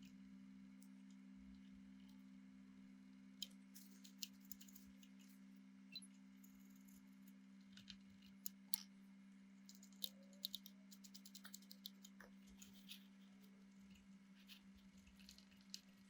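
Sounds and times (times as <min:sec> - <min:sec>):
faint low hum: 0:00.0 - 0:16.0
light clicks and ticks: 0:03.4 - 0:05.4, 0:09.6 - 0:16.0.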